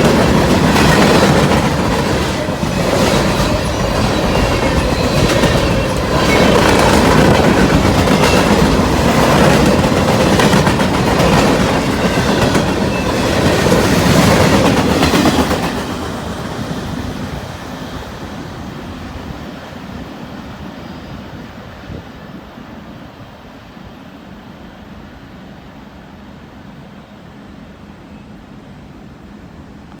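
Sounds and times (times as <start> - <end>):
train wheels clicking on rails: 0.0 - 22.0.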